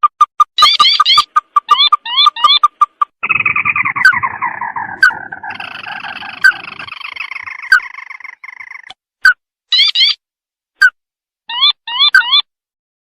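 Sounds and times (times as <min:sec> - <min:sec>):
bird chattering trill: 0:00.1 - 0:08.9, 0:09.7 - 0:10.2, 0:11.5 - 0:12.5.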